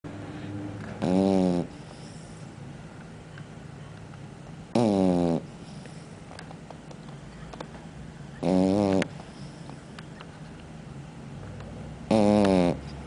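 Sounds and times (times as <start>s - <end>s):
dog breathing: 0.2s - 2.6s, 4.8s - 6.3s, 8.5s - 9.9s
dog snoring: 0.3s - 2.5s, 4.7s - 6.1s, 8.4s - 9.8s, 12.0s - 13.0s.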